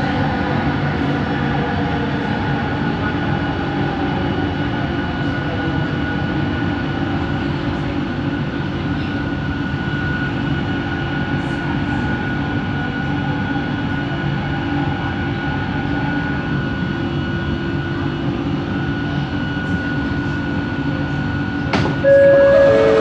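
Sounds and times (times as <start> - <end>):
train car rumble: 0.0 - 23.0
high motor whine: 22.0 - 23.0.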